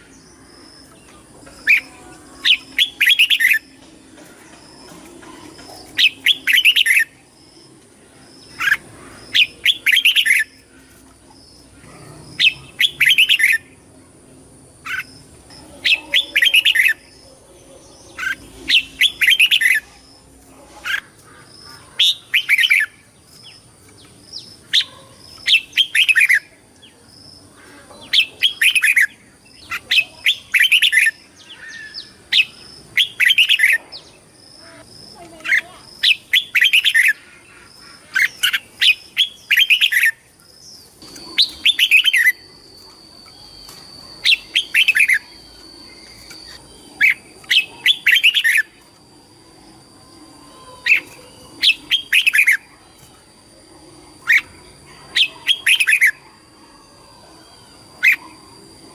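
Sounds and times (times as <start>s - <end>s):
bird singing whistled phrases: 43.3s - 48.7s.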